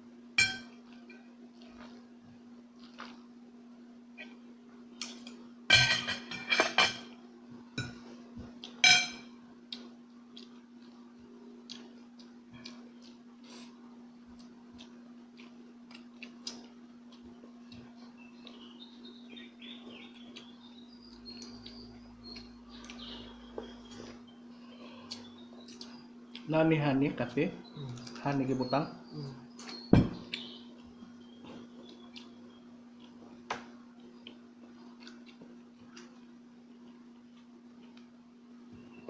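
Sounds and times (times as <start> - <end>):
steady low hum: 0.0 - 39.0
cutlery clinking against plate: 0.4 - 0.8, 5.1 - 7.1, 8.8 - 9.3
faint chirps: 17.8 - 33.0.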